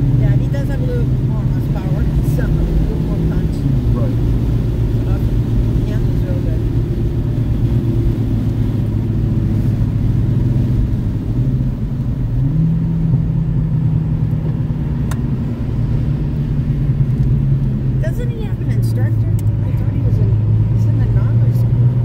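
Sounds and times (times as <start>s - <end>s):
car engine running: 0.0s - 22.0s
low road rumble: 0.0s - 22.0s.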